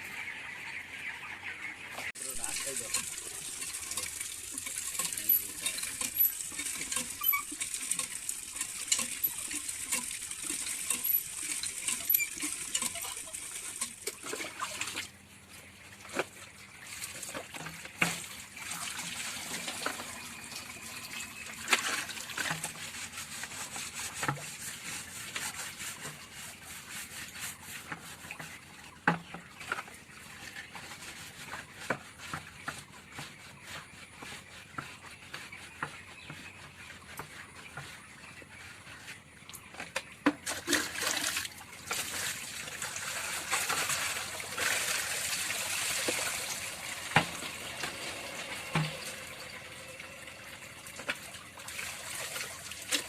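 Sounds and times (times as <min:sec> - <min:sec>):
water running and splashing: 0:02.1 - 0:38.8, 0:39.6 - 0:53.0
pots knocking and clattering: 0:02.4 - 0:14.7, 0:47.1 - 0:49.4.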